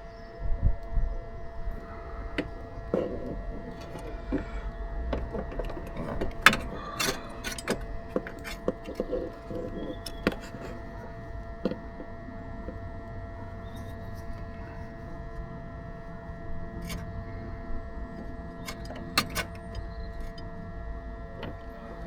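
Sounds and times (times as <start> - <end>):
steady electrical hum: 0.0 - 22.0
hand tools clicking and rustling: 1.6 - 13.0, 18.2 - 20.5, 21.4 - 22.0.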